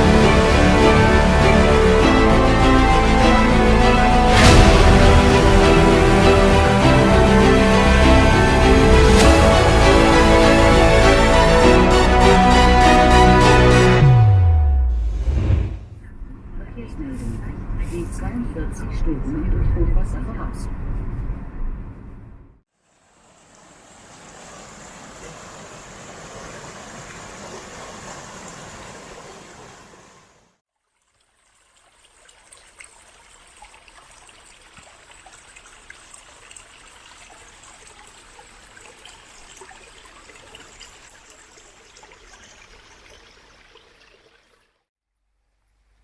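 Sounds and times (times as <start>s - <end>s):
water drips: 30.8s - 44.8s
water trickling: 30.8s - 44.8s.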